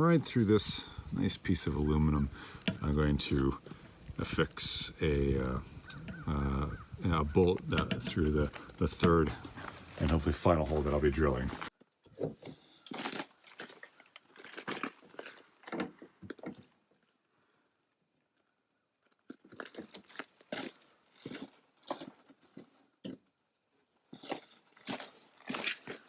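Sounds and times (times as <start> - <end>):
bolt clicking and scraping on metal: 2.5 - 4.6, 5.4 - 10.9.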